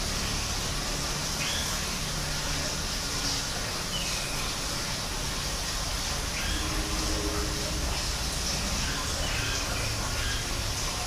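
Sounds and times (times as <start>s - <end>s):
low hum: 5.7s - 10.2s.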